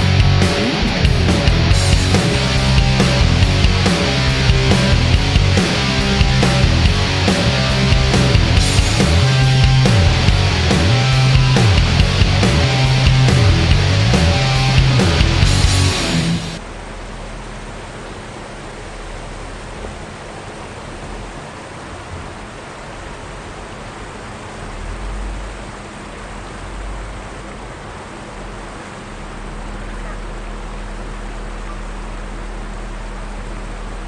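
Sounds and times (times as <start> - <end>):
vehicle engine idling: 0.0 - 21.6, 22.4 - 34.0
rushing water: 14.6 - 34.0.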